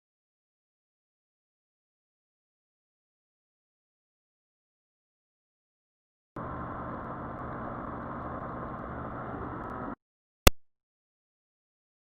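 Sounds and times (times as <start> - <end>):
motorcycle engine running: 6.4 - 10.0.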